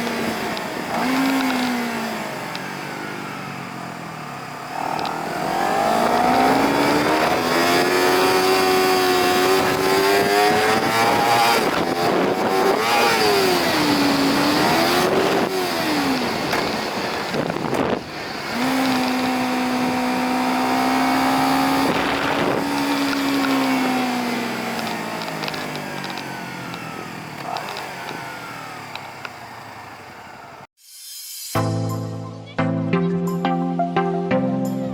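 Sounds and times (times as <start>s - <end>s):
motorcycle engine revving: 0.0s - 30.7s
wind noise on microphone: 5.9s - 26.0s.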